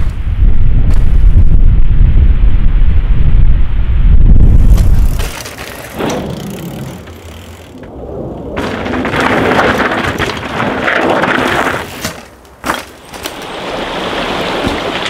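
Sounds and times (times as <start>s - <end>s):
bike tyres on dirt and stones: 4.0s - 15.0s.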